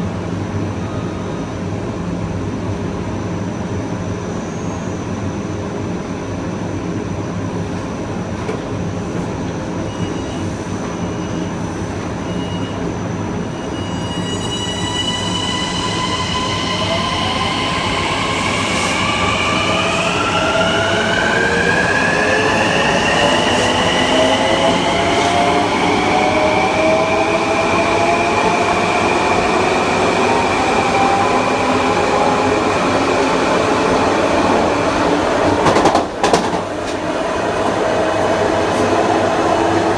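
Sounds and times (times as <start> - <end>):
train wheels rumbling on rails: 6.6 - 12.5, 13.5 - 39.9
rising train motor whine: 12.2 - 39.9.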